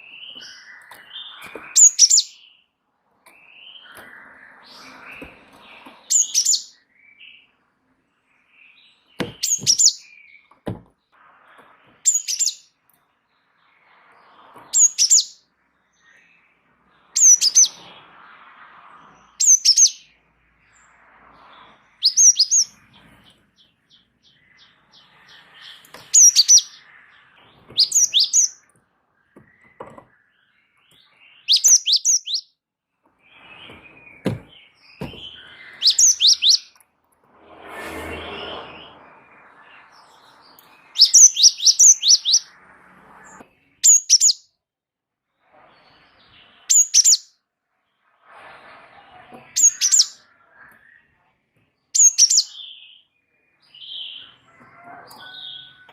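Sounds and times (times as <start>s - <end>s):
songbird calling: 0.0s - 2.6s, 23.6s - 28.7s, 31.2s - 32.5s, 33.3s - 36.8s, 40.7s - 42.4s, 43.8s - 44.4s, 46.7s - 47.3s
soft knocks: 33.7s - 35.4s.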